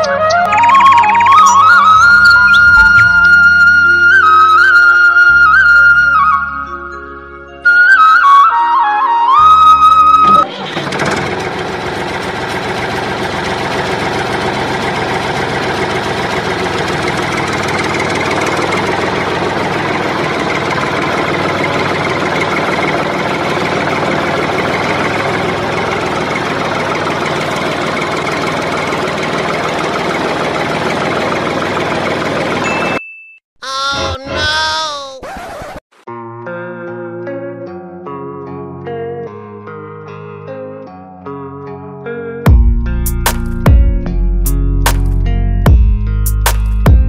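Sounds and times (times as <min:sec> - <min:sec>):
flute music: 0:00.0 - 0:10.5.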